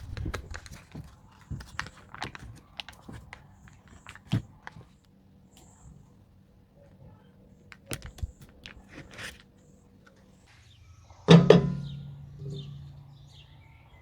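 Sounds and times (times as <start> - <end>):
light clicks and taps: 0.0 - 10.4.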